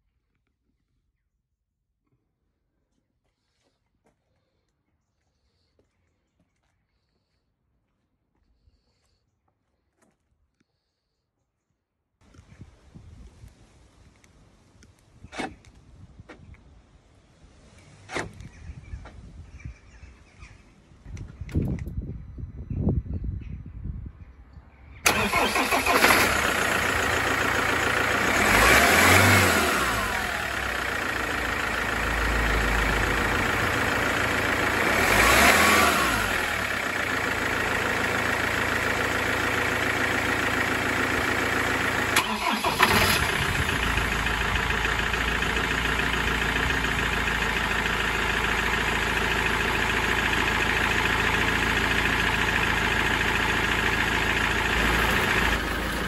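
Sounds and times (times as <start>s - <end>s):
diesel engine idling: 25.0s - 56.0s
diesel engine starting and revving: 25.0s - 56.0s.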